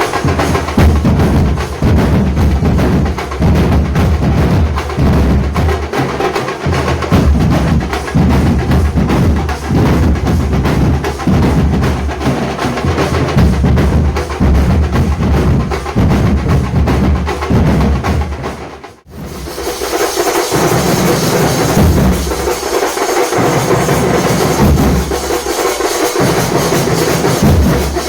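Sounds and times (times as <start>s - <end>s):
barrel drums beating fast rhythm: 0.0s - 28.0s.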